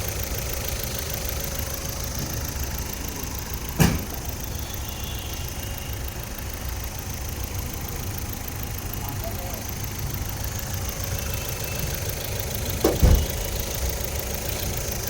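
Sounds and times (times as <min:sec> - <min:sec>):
car engine idling: 0:00.0 - 0:15.0
sharp thump: 0:03.8 - 0:04.2, 0:12.8 - 0:13.4.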